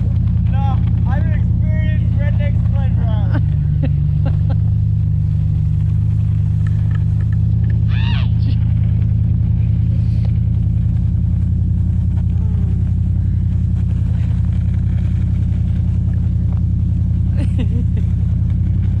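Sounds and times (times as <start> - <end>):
pickup truck engine running: 0.0 - 19.0
high-pitched vocal cry: 7.9 - 8.6.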